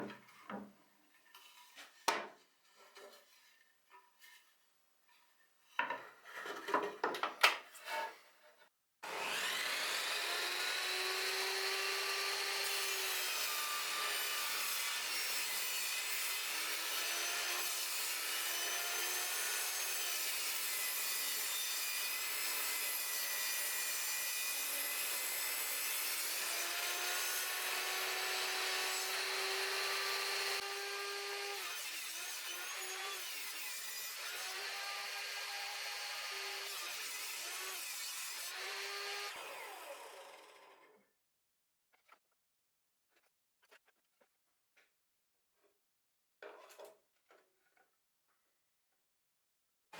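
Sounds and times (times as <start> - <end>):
table saw cutting wood: 9.0 - 41.0.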